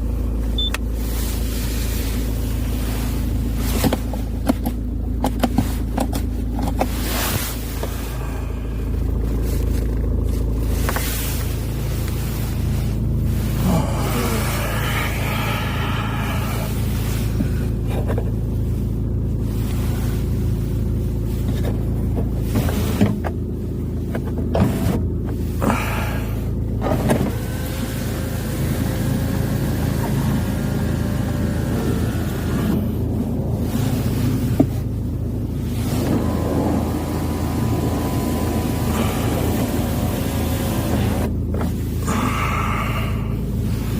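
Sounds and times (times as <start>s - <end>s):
car engine humming: 0.0s - 43.9s.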